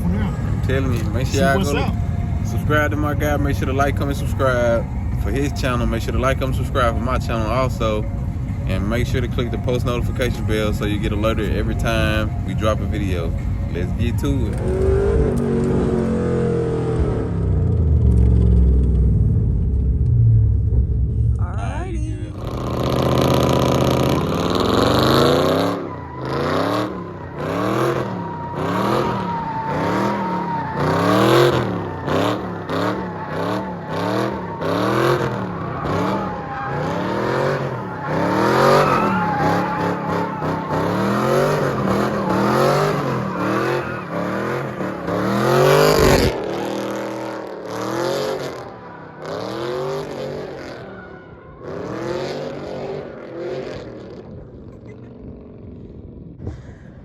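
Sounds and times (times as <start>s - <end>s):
car engine revving: 0.0s - 56.0s
tyre squeal: 22.4s - 53.6s.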